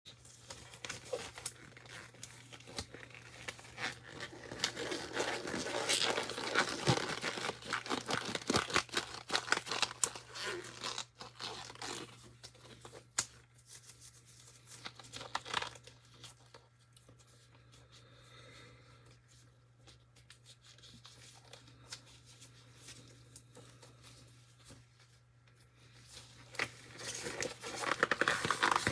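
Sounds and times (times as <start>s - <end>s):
paper or plastic tearing: 0.3s - 13.3s, 26.5s - 28.9s.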